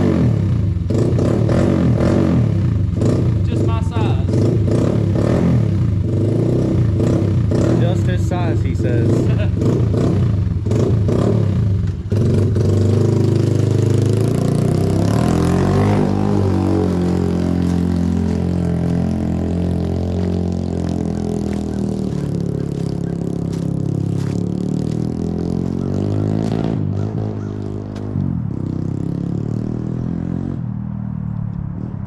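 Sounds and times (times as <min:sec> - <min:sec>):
small motorcycle engine revving: 0:00.0 - 0:30.6.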